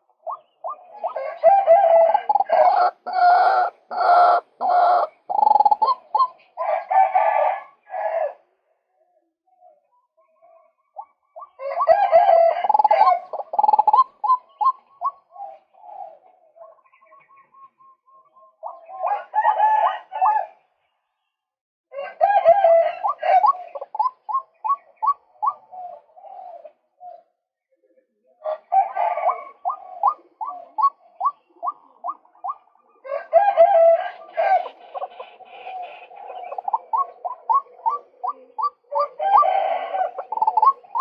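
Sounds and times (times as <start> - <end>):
waterhen calling: 0.0 - 6.6, 12.7 - 15.5, 23.0 - 26.7, 29.3 - 41.0.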